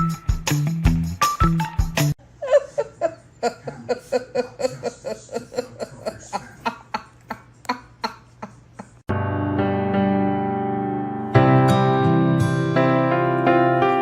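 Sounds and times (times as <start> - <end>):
music: 0.0 - 2.2, 9.1 - 14.0
person laughing in quick bursts: 2.4 - 9.0.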